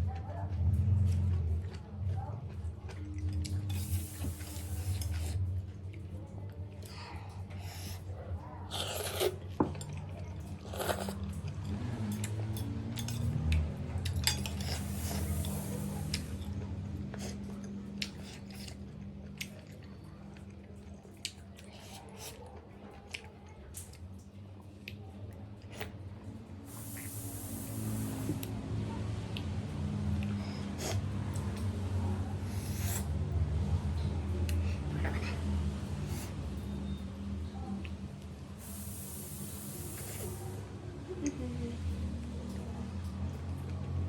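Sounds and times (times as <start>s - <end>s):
chewing: 0.0s - 37.0s
person slurping noodles: 30.6s - 31.1s, 32.5s - 33.2s.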